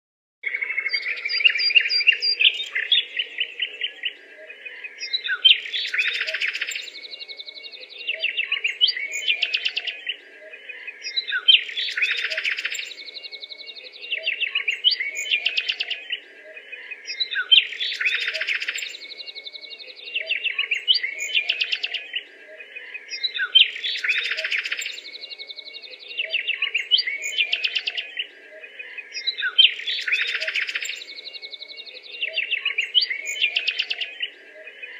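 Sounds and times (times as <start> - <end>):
birds chirping and trilling: 0.4 - 34.9.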